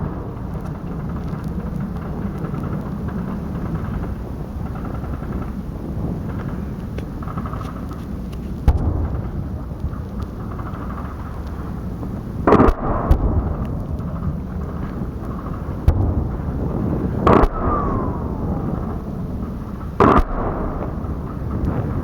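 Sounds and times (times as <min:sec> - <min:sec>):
low rumble: 0:00.0 - 0:22.0
weapons fire booms: 0:08.6 - 0:11.8, 0:12.4 - 0:22.0
faint falling whine: 0:13.4 - 0:22.0.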